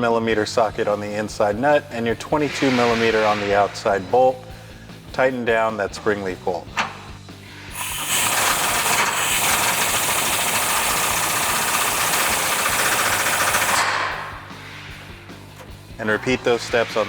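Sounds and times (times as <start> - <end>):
air hiss: 2.2 - 4.8, 7.7 - 15.5
impact wrench hammering: 7.8 - 14.4.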